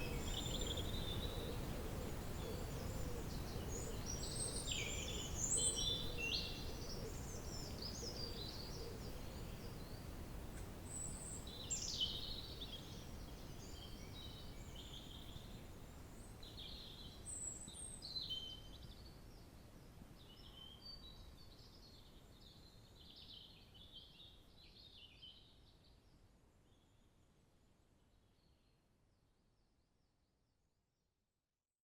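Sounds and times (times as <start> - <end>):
songbirds chirping and trilling: 0.0 - 18.8.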